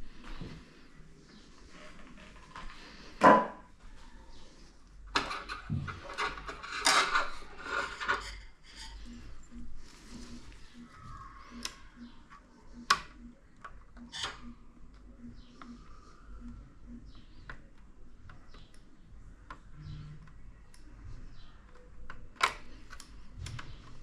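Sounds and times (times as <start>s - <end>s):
rubbing and scraping: 5.1s - 10.9s.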